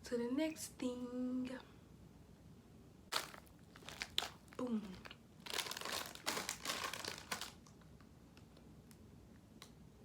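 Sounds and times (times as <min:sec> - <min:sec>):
plastic packaging crinkling: 0:03.1 - 0:07.8.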